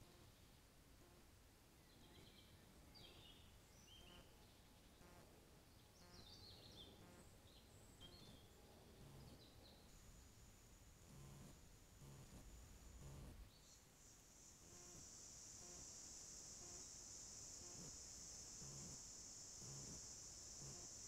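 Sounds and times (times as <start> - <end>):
faint songbird calls: 6.0 - 9.9.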